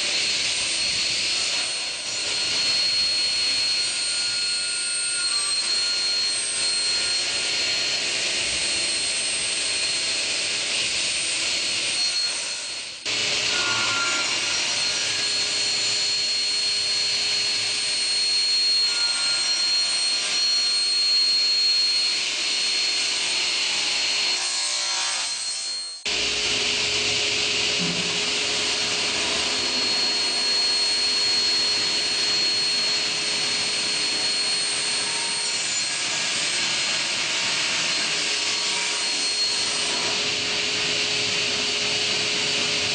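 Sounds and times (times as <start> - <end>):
loud sawing: 0.0 - 42.9
saw motors whining: 0.0 - 42.9.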